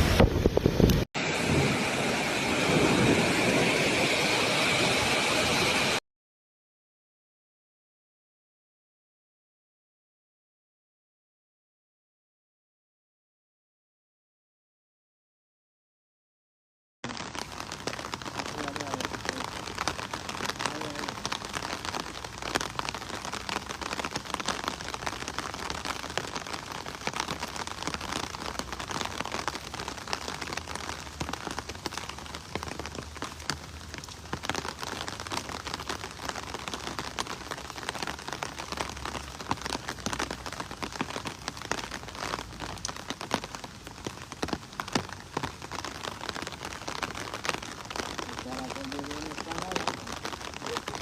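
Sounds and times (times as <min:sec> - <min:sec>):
hailstones and rain pelting: 0:17.1 - 0:51.0.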